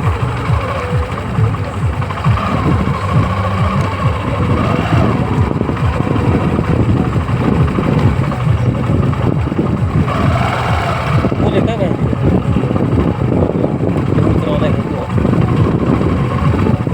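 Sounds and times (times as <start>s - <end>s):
tractor diesel engine chugging: 0.0s - 16.9s.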